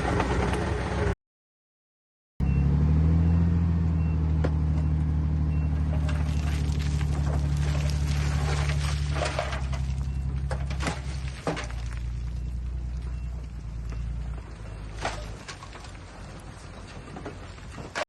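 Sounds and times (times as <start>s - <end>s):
heavy diesel engine running: 2.4s - 18.0s
scraping and clanking: 5.8s - 18.0s.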